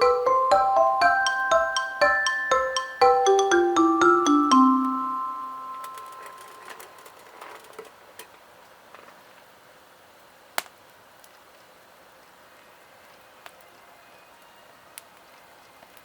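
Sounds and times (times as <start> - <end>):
mallet percussion note: 0.0 - 6.4
campfire crackling: 5.9 - 13.7, 14.4 - 16.0
fire pops: 10.5 - 11.7.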